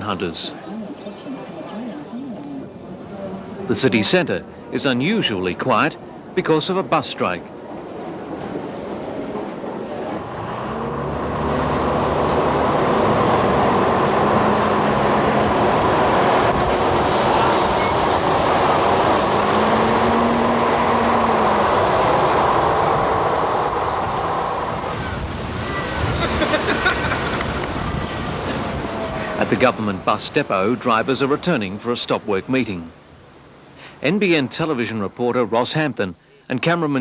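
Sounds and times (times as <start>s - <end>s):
vehicle engine and tyre noise: 7.4s - 31.8s
brief high squeaks: 17.4s - 19.6s.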